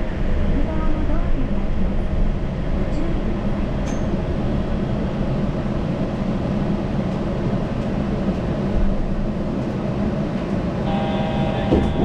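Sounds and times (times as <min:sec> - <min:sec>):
train rumbling with low hum: 0:00.0 - 0:12.0
faint high tone: 0:10.9 - 0:12.0.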